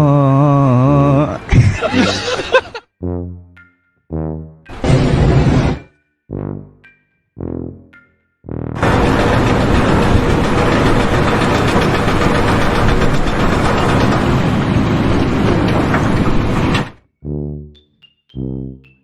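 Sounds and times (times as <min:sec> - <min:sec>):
machine running loudly: 0:08.8 - 0:17.0.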